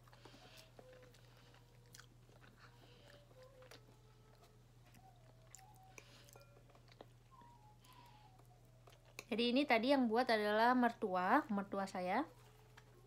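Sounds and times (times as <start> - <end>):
faint chewing: 0.0 - 9.4.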